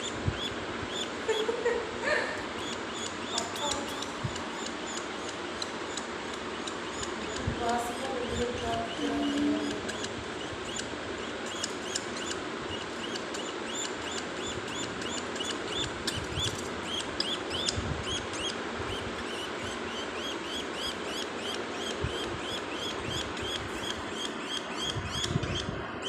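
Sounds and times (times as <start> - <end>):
budgerigar chick chirping: 0.0 - 1.7, 2.4 - 25.7.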